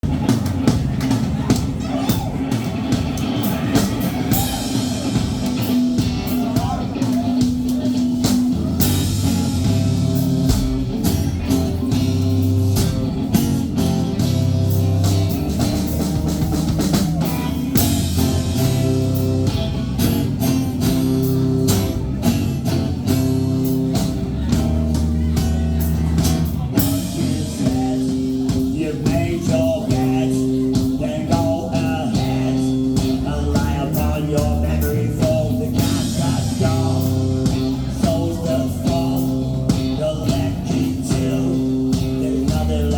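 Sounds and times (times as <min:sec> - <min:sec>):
rock band playing live: 0:00.0 - 0:42.9
person singing: 0:23.9 - 0:42.9.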